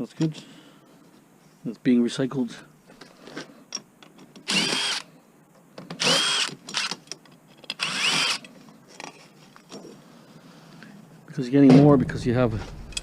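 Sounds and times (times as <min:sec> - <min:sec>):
power drill motor whine: 0:04.4 - 0:05.1, 0:06.0 - 0:06.9, 0:07.8 - 0:08.4.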